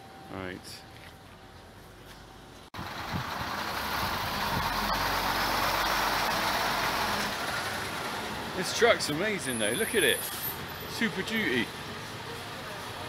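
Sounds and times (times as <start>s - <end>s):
truck engine running: 2.8s - 9.6s.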